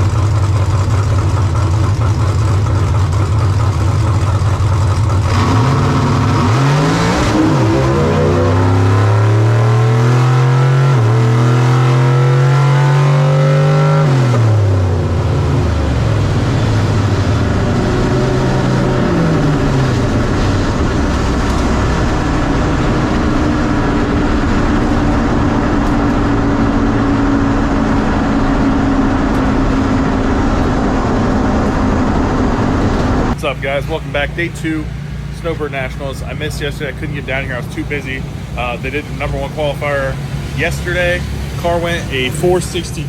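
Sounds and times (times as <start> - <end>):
drag car engine revving: 0.0 - 43.0
wind noise: 14.3 - 33.4.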